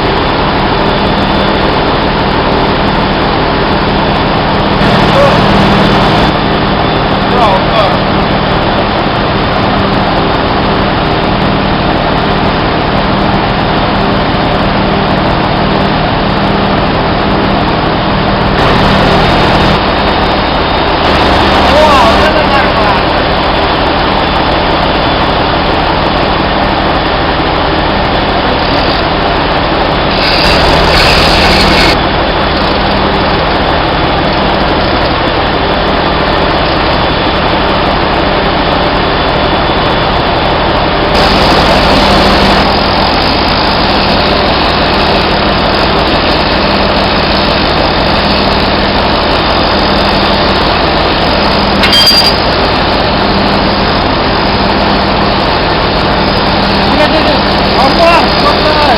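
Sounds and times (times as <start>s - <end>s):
low hum: 0.0s - 21.6s
heavy machinery drone: 0.0s - 58.9s.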